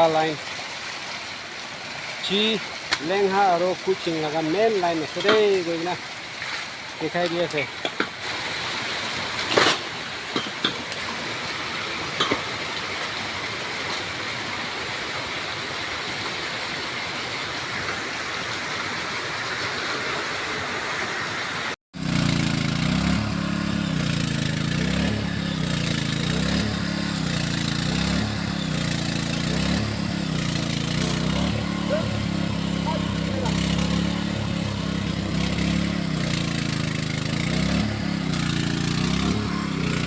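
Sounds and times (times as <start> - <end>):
small engine running: 21.4 - 40.0.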